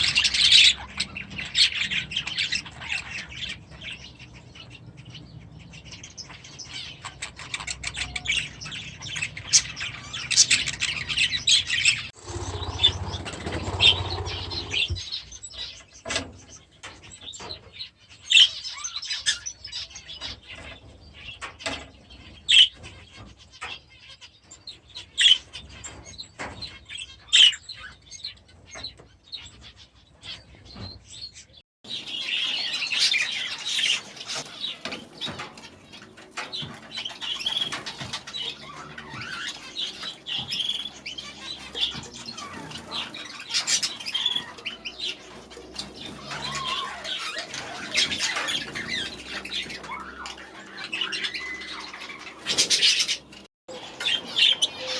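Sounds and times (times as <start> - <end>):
budgerigars chirping: 0.0 - 15.8, 36.6 - 54.9.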